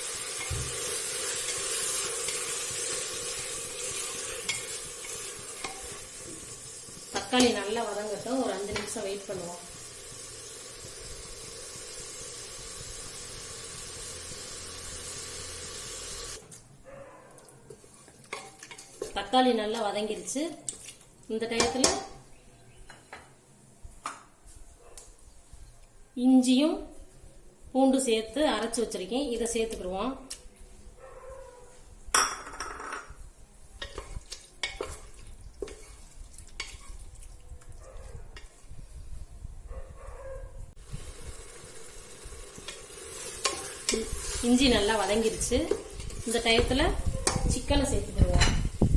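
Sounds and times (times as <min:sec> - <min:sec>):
food sizzling in a pan: 0:00.0 - 0:16.5, 0:33.7 - 0:37.3, 0:40.8 - 0:48.9
utensil scraping pan: 0:33.8 - 0:37.1.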